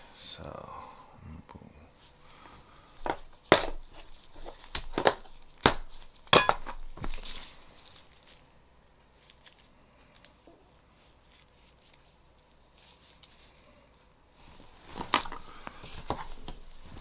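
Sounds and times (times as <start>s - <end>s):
metallic clink: 6.3s - 7.0s.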